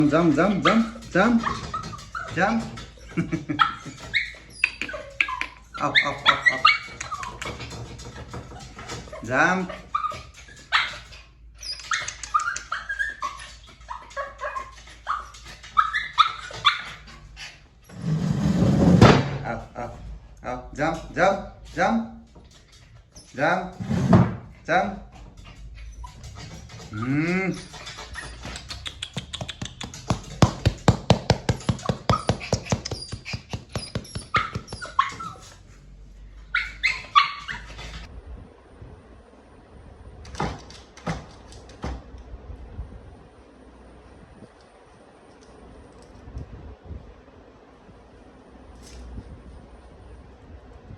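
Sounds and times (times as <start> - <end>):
puppy yipping and whining: 0.6 - 17.7, 25.4 - 35.7, 36.4 - 38.1
sharp clicks: 28.4 - 30.8.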